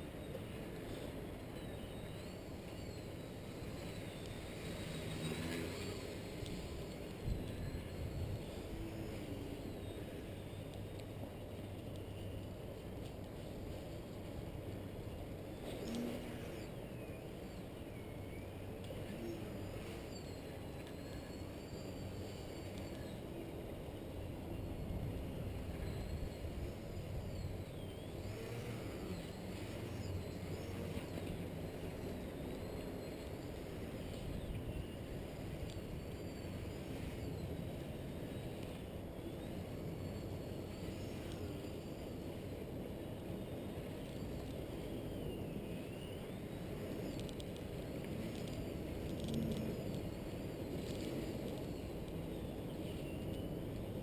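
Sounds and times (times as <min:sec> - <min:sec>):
model plane electric motor whine: 0:00.2 - 0:11.0, 0:15.6 - 0:17.9, 0:18.7 - 0:23.6, 0:24.5 - 0:54.0.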